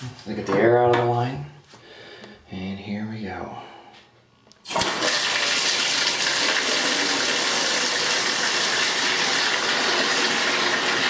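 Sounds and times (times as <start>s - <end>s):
water gushing into a bucket: 4.7s - 11.0s.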